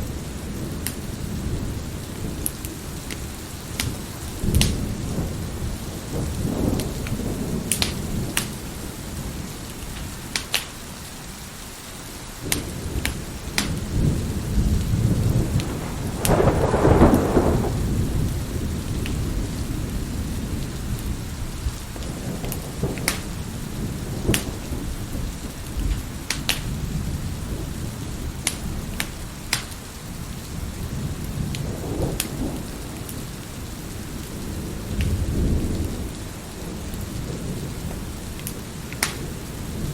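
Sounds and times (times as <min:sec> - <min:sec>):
thunder rumbling: 0:00.0 - 0:10.2, 0:12.4 - 0:39.9
steady rain: 0:00.0 - 0:39.9
wood fire crackling: 0:00.2 - 0:09.0, 0:09.6 - 0:11.2, 0:12.4 - 0:19.2, 0:21.8 - 0:24.8, 0:28.4 - 0:30.8, 0:36.1 - 0:39.4.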